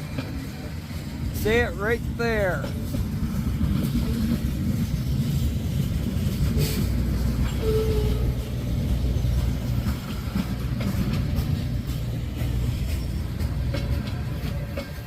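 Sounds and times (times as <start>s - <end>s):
train wheels rumbling on rail: 0.0s - 15.0s
faint wheel squeal: 7.5s - 8.4s.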